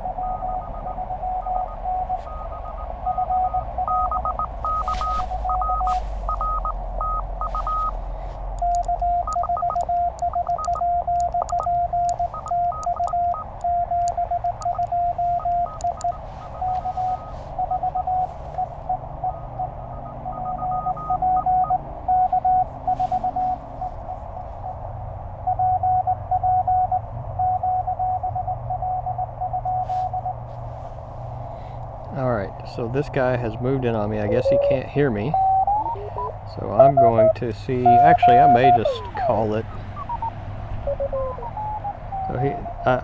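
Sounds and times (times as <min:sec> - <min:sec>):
radio band noise: 0:00.0 - 0:21.2, 0:32.2 - 0:43.0
received morse code: 0:00.0 - 0:24.0, 0:33.0 - 0:43.0
morse code sidetone: 0:00.0 - 0:24.8, 0:25.5 - 0:30.4, 0:33.0 - 0:43.0
morse paddle clicks: 0:08.5 - 0:16.9.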